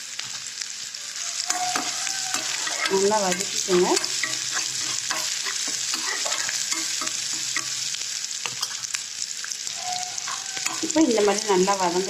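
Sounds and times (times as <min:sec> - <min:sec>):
onion sizzling in hot oil: 0:00.0 - 0:12.0
utensil scraping pan: 0:01.5 - 0:07.9, 0:09.8 - 0:11.2.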